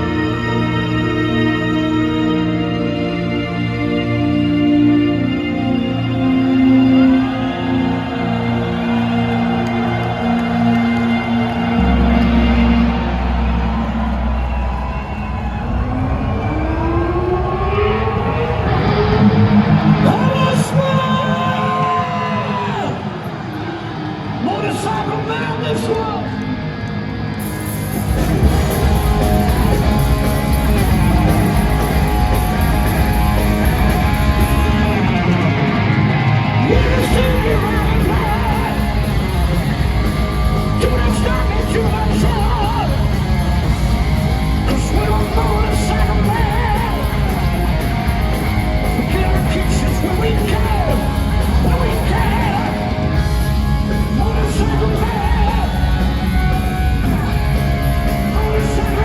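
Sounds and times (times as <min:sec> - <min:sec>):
bass guitar: 0:00.0 - 0:21.4, 0:26.4 - 0:59.0
distorted electric guitars: 0:00.0 - 0:59.0
drums: 0:07.6 - 0:23.8, 0:25.8 - 0:59.0
person singing and shouting: 0:36.6 - 0:43.4, 0:44.7 - 0:47.6, 0:49.0 - 0:57.2.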